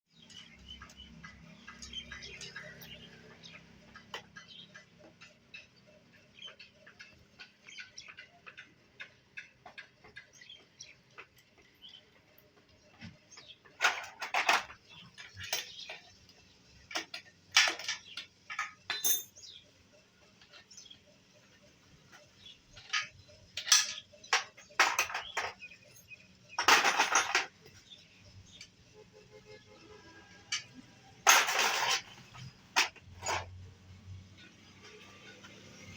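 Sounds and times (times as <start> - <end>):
metal parts clinking and rattling: 13.4 - 16.2, 16.8 - 19.6, 22.1 - 28.0, 30.4 - 33.6.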